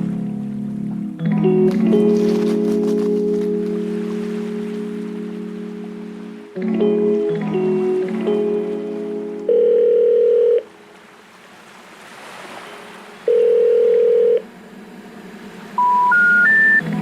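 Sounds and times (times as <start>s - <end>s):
long low telephone beeps: 9.5s - 10.7s, 13.3s - 14.4s, 15.8s - 16.8s
short rising telephone notes: 15.8s - 16.8s.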